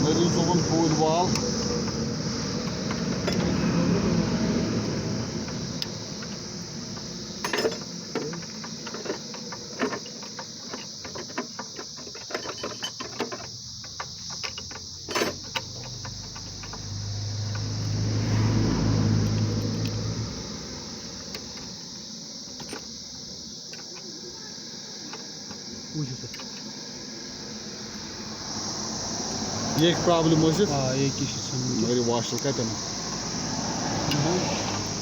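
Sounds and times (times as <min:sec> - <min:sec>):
metal tools clinking: 0:02.8 - 0:03.6, 0:07.4 - 0:17.7.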